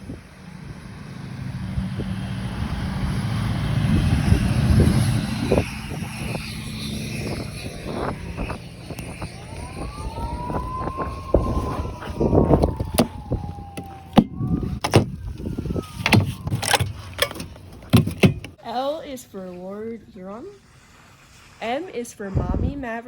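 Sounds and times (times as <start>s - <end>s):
whine changing in pitch: 0.0s - 16.8s
vehicle engine rumble: 0.0s - 18.6s.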